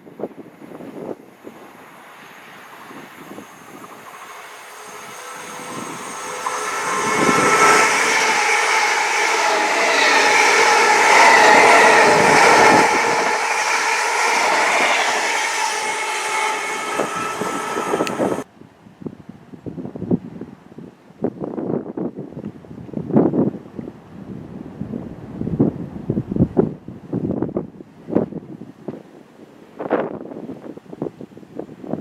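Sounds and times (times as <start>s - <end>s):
train whining tones: 1.4s - 18.5s
train wheels rumbling: 1.6s - 18.4s.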